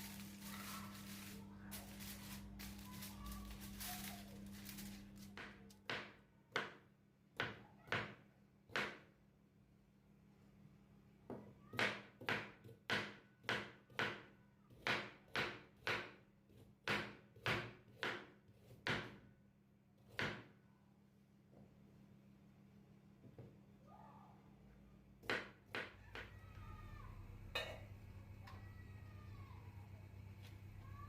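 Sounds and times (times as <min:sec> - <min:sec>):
faint low hum: 0:26.0 - 0:31.0.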